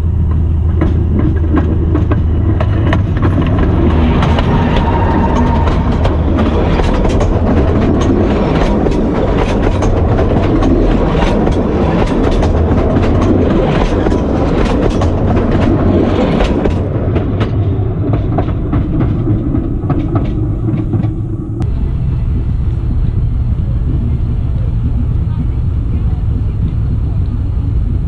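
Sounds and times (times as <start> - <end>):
railway coach wheels rumbling: 0.0 - 28.0
wheels clicking and clattering: 0.0 - 28.0.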